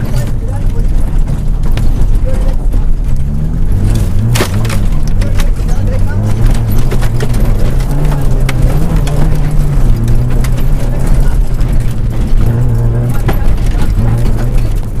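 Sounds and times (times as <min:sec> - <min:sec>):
rally car engine revving: 0:00.0 - 0:15.0
sharp clicks and knocks: 0:00.0 - 0:15.0.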